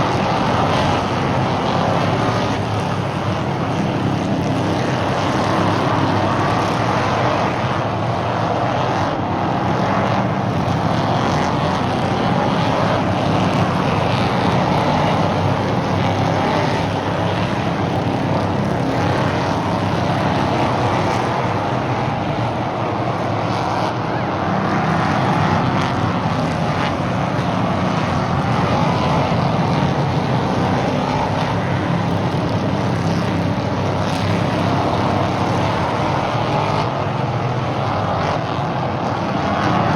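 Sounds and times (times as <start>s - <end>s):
stock car engines racing: 0.0s - 39.9s.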